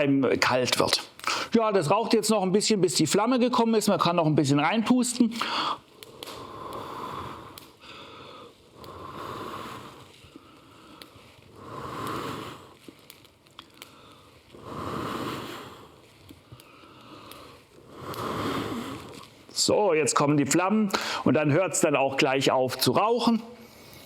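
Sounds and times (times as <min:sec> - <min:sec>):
person blowing on embers: 0:05.3 - 0:19.7, 0:23.5 - 0:24.0.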